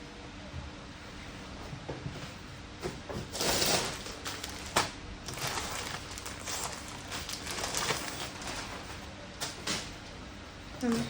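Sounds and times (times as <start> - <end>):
plastic packaging rustling: 3.3 - 9.1.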